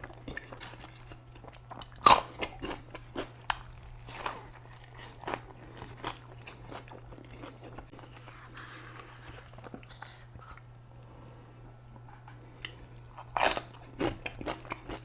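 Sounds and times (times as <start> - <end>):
soft chewing: 0.0 - 10.9
faint low hum: 0.0 - 15.0.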